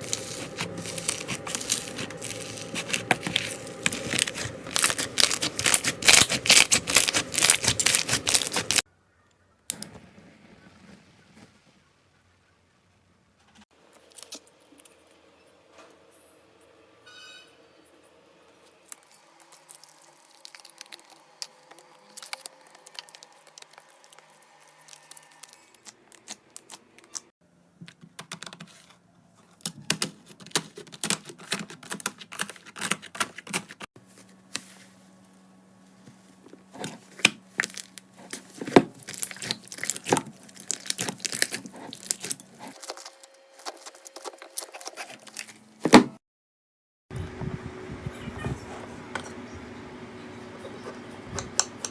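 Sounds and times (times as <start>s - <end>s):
slime squeezed crackling and popping: 0.0s - 8.8s, 19.4s - 26.4s, 37.5s - 45.5s.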